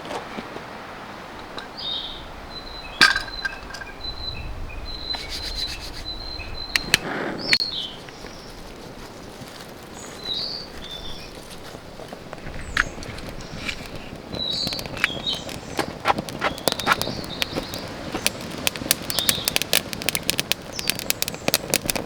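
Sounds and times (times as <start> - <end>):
birds calling: 1.7 - 9.3, 9.9 - 22.0
scraping rustle: 7.0 - 19.1.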